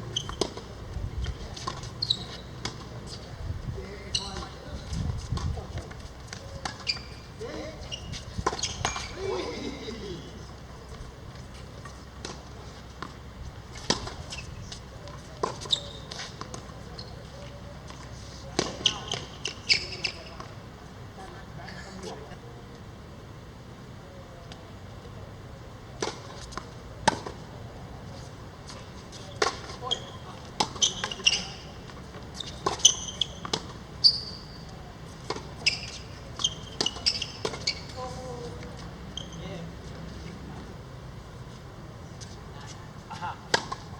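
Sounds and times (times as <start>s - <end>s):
low background noise: 0.0s - 43.9s
shoe squeaks on court floor: 0.1s - 0.7s, 1.6s - 3.3s, 4.0s - 4.6s, 6.4s - 9.3s, 13.9s - 18.0s, 18.6s - 20.5s, 29.2s - 39.6s
racket hitting shuttlecock: 43.5s - 43.9s.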